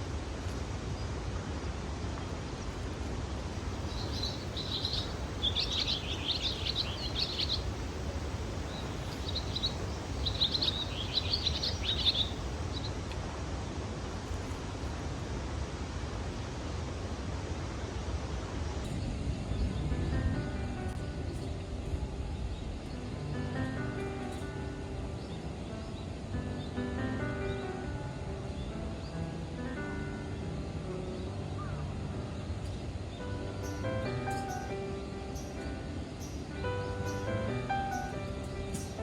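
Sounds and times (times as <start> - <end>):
outdoor background noise: 0.0 - 39.0
small birds chirping: 3.6 - 13.0, 33.6 - 39.0.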